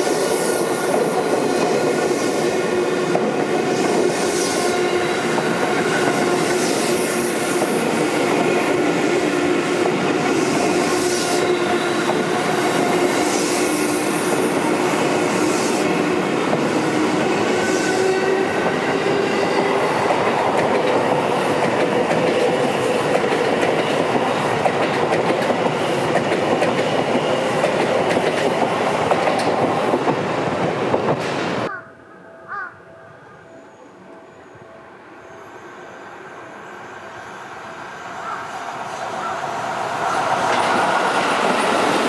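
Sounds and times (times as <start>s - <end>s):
train wheels rushing on rail: 0.0s - 31.7s, 36.8s - 42.0s.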